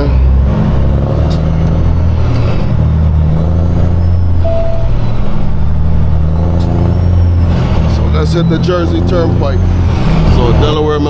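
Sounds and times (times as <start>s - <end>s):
truck diesel engine droning: 0.0s - 11.0s
short beep: 4.4s - 5.4s.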